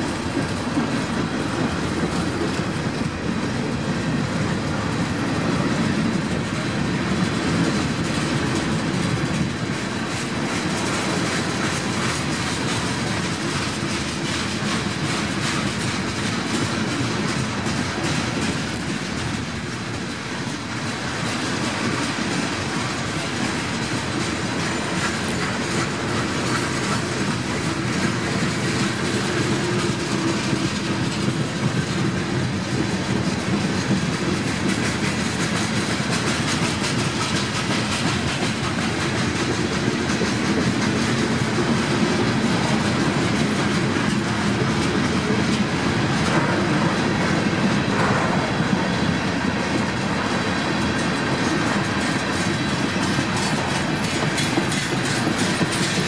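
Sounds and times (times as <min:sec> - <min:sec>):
freight car wheels clattering: 0:50.8 - 0:56.0.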